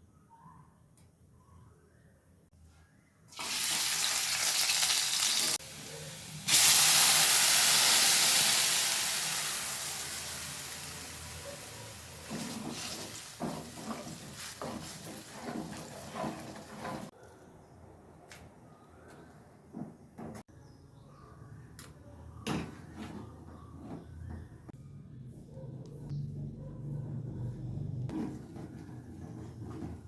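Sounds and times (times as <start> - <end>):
hot oil sizzling in a pan: 3.3 - 16.7.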